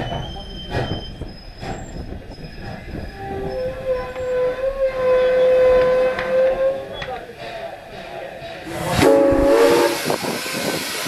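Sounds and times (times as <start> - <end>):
wheel squeal: 0.0 - 7.2
steam whistle blast: 8.8 - 10.7.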